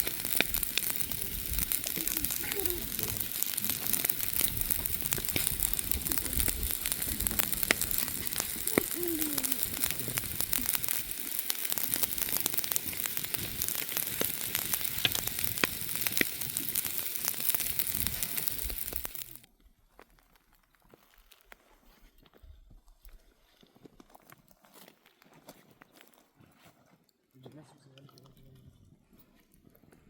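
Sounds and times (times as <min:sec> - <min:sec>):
wood fire crackling and popping: 0:00.0 - 0:21.5.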